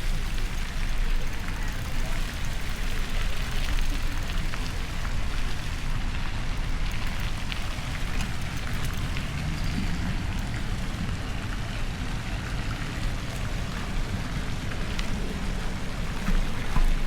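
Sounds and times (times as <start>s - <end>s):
road noise: 0.0s - 17.0s
faint ticks: 0.2s - 5.7s.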